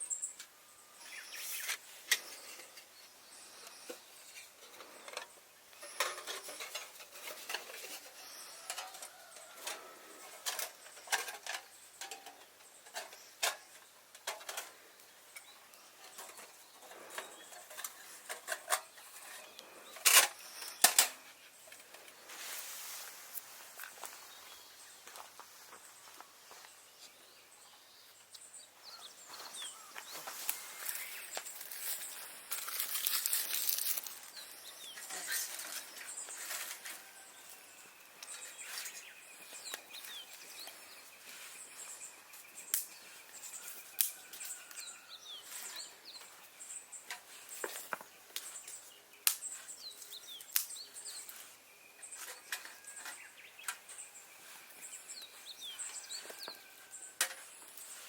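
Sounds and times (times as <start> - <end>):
small birds chirping: 0.0 - 58.0
twigs and leaves rustling: 14.3 - 27.1, 28.9 - 58.0
twigs snapping: 30.4 - 34.3, 49.2 - 49.6, 50.4 - 50.8.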